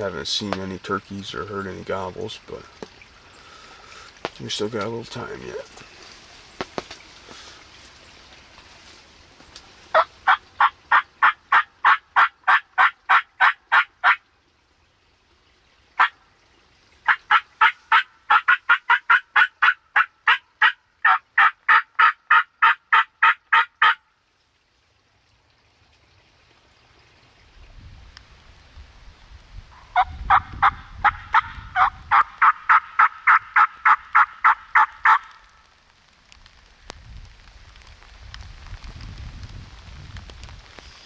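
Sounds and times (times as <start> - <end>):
turkey yelps: 9.9 - 14.2, 17.1 - 24.0, 29.8 - 35.4.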